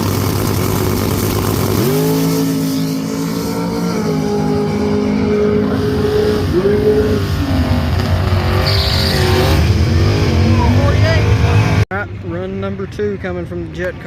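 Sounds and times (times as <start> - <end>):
race car engine at high revs: 0.0 - 11.8.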